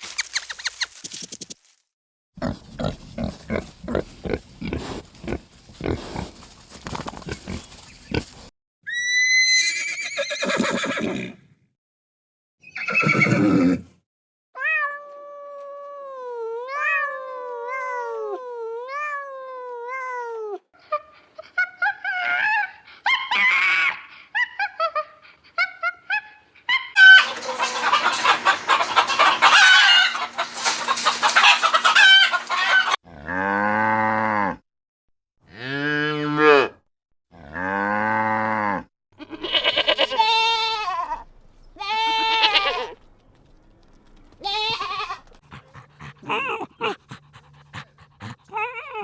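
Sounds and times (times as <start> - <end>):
horse neighing: 8.9 - 11.4, 12.7 - 13.9, 27.0 - 33.0
rapid pulsing animal sounds: 27.0 - 33.0, 45.2 - 49.0.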